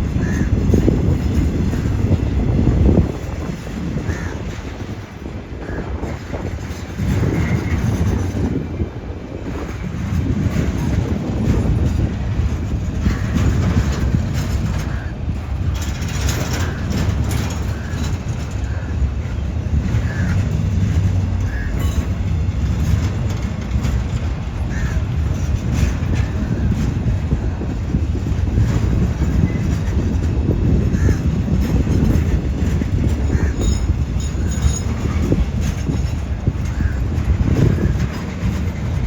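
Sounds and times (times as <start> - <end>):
freight train rumbling by: 0.0 - 39.0
train wheel clicks: 0.0 - 39.0
wheels squeaking: 10.2 - 39.0.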